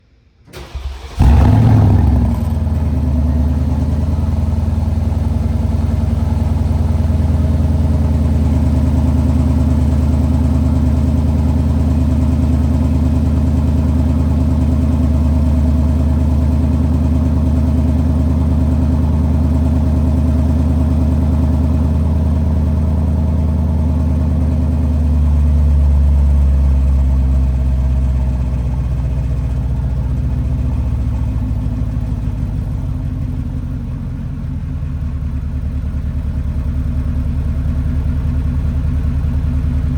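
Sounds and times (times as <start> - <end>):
car engine starting and idling: 0.2 - 39.9.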